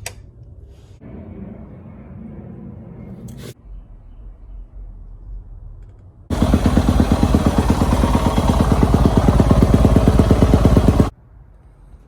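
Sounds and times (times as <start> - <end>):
dirt bike engine running: 6.3 - 11.1.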